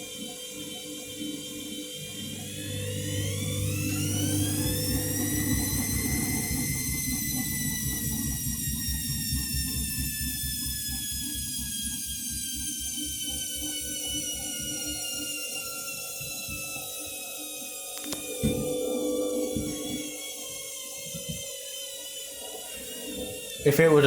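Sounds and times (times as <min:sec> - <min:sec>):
washing machine motor whining: 0:00.0 - 0:24.0
drum turning low beat: 0:02.4 - 0:11.1.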